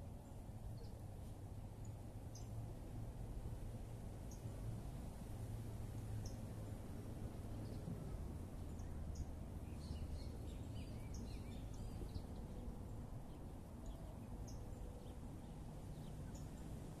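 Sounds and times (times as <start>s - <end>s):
birds chirping: 8.6s - 16.8s.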